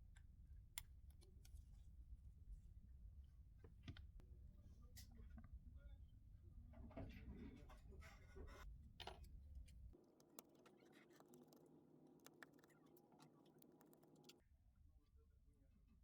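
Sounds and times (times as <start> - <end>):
small tools scratching and clicking: 10.1 - 14.4.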